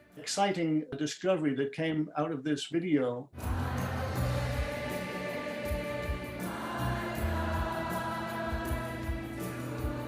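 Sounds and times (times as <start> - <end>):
choir singing held chords: 3.4 - 10.0.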